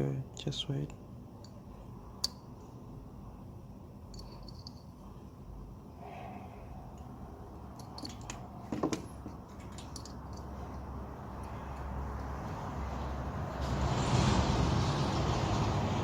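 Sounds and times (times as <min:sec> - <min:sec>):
low steady hum: 0:00.0 - 0:13.6
hands handling parts and tools: 0:04.1 - 0:05.0, 0:07.7 - 0:12.4.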